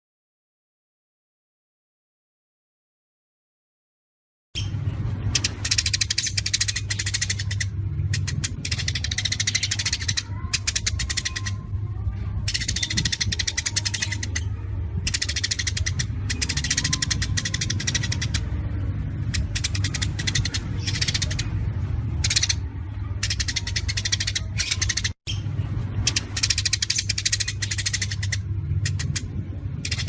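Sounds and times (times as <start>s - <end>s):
bird singing rapid clipped notes: 4.6s - 11.7s, 12.4s - 18.6s, 19.2s - 21.6s, 22.2s - 30.0s
steady low hum: 4.6s - 30.0s.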